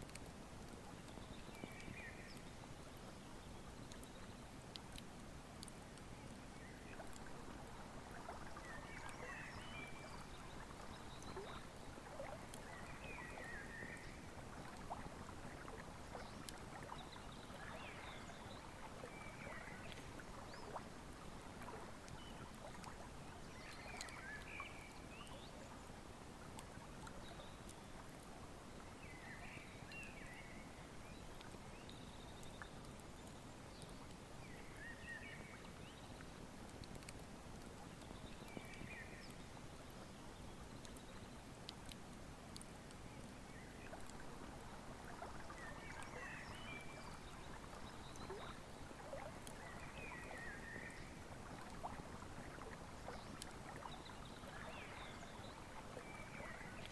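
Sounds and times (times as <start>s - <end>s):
river flowing: 6.8s - 30.9s, 41.5s - 56.9s.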